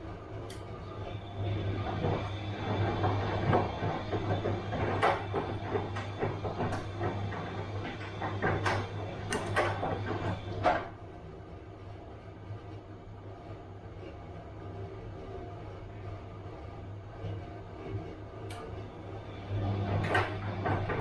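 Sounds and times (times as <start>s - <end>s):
steady low hum: 0.0s - 21.0s
washing machine drum tumbling: 1.0s - 11.0s, 19.0s - 21.0s.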